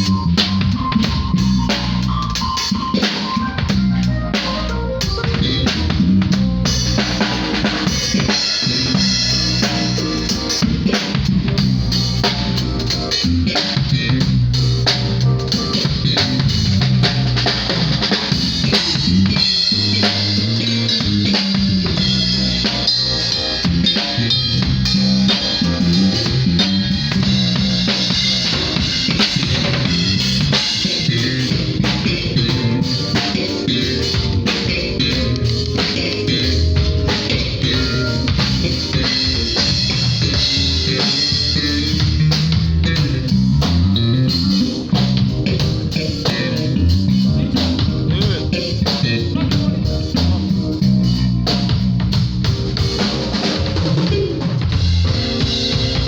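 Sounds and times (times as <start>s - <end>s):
bass line: 0.0s - 56.0s
drum kit: 0.0s - 56.0s
live band playing: 0.0s - 56.0s.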